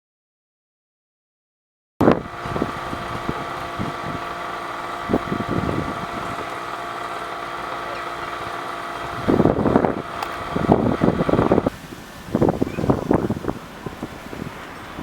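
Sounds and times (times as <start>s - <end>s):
mechanical engine hum: 2.0s - 11.7s.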